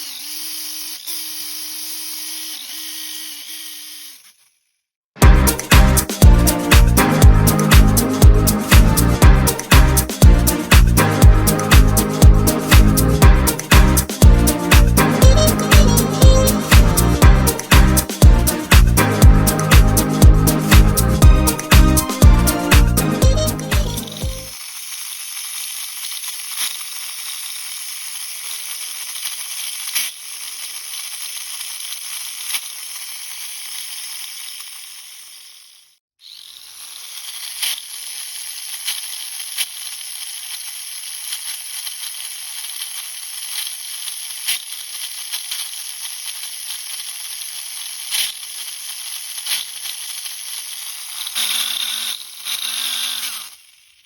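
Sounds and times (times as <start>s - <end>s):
small electric motor whirring: 0.0s - 4.8s, 11.9s - 21.7s, 23.0s - 54.0s.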